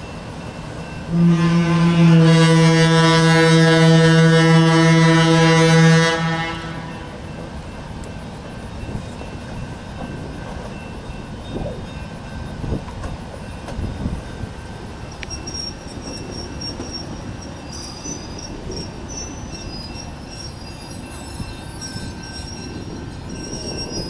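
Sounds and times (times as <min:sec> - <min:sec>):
train wheels rumbling on rail: 0:00.0 - 0:24.0
wheel flange squeal: 0:15.1 - 0:24.0.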